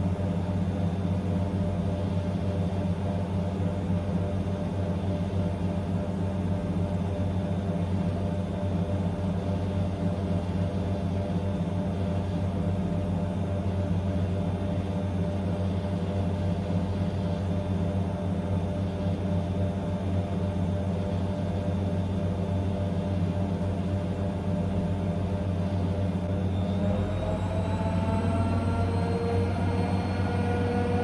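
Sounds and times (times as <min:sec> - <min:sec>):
washing machine spinning: 0:23.6 - 0:31.0.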